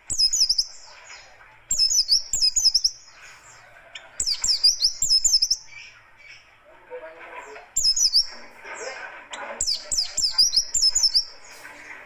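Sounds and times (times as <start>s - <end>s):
bird fast high chirps: 0.0s - 3.2s, 4.0s - 6.0s, 7.8s - 8.4s, 9.6s - 11.6s
soft bird twittering: 0.0s - 6.6s, 7.4s - 12.0s.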